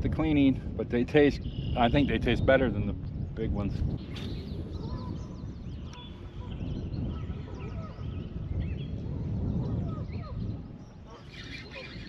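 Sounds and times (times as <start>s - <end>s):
birds chirping and whistling: 1.4s - 2.6s, 3.8s - 12.0s.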